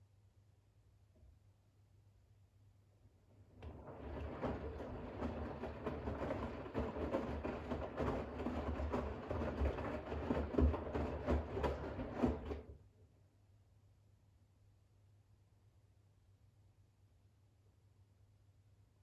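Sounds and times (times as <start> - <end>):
washing machine drum tumbling: 3.6 - 12.7.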